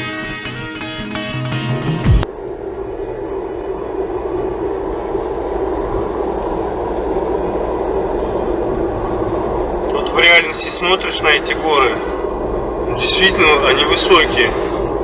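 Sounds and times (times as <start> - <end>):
road and engine drone in car cabin: 1.3 - 15.0.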